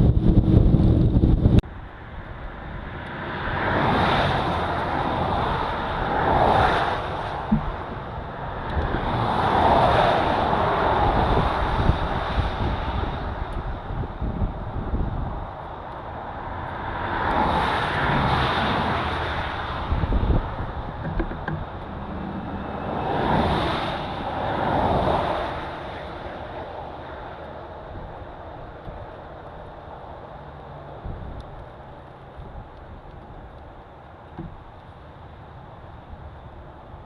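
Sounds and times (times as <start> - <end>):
wind gust on microphone: 0.0 - 1.7, 2.6 - 27.2
road vehicles rumbling: 0.0 - 37.0
vehicle passing: 16.3 - 27.4.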